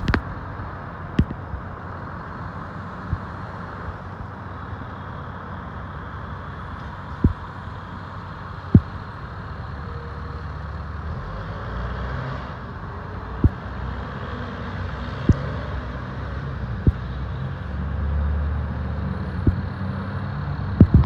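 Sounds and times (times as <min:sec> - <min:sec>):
fire engine engine rumble: 0:00.0 - 0:21.0
sharp low thumps: 0:16.8 - 0:17.0.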